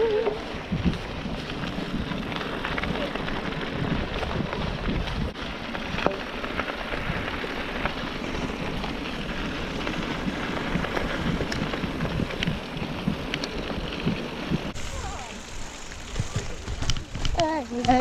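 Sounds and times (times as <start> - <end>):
bike tyres rolling on dirt: 0.0 - 18.0
wind noise on microphone: 0.0 - 18.0
bike knocking over bumps: 15.8 - 18.0.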